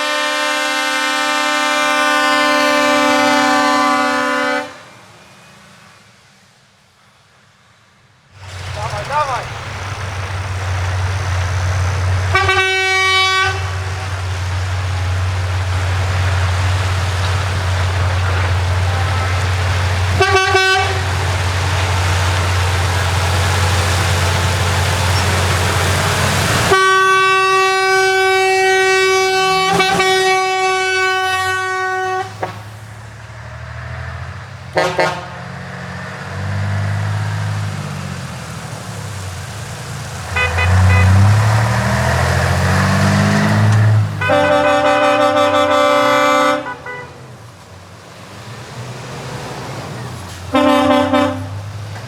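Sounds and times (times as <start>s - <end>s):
truck horn blasts: 0.0s - 5.0s, 12.2s - 14.2s, 18.2s - 21.3s, 26.1s - 32.7s, 34.7s - 35.6s, 40.4s - 42.2s, 43.5s - 47.3s, 50.5s - 51.7s
truck engine running: 8.3s - 52.0s
engine revving: 8.4s - 47.0s.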